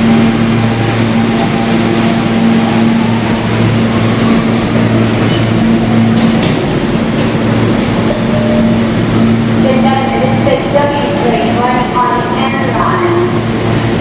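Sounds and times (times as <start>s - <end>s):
wheels rumbling on rail: 0.0s - 14.0s.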